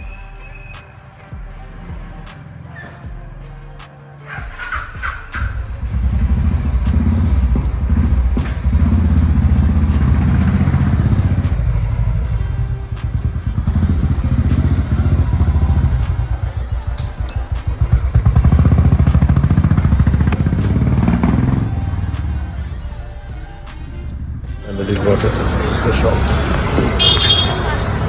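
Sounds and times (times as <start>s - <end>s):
motorcycle engine rumbling: 4.4s - 28.0s.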